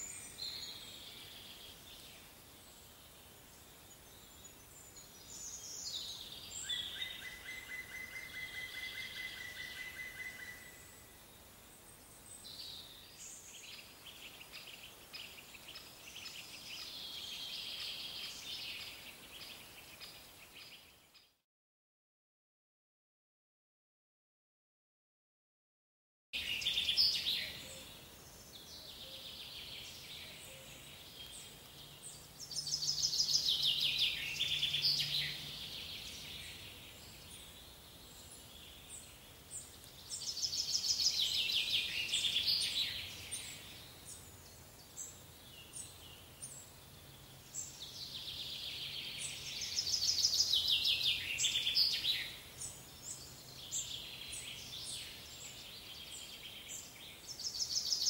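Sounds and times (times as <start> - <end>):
songbird singing trilled phrases: 26.4 - 46.6, 47.4 - 58.0.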